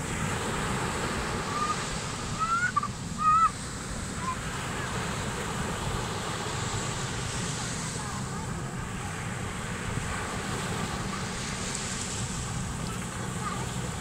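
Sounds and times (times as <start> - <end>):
ocean surf: 0.0 - 14.0
wind: 0.0 - 14.0
high-pitched cries: 2.4 - 3.6.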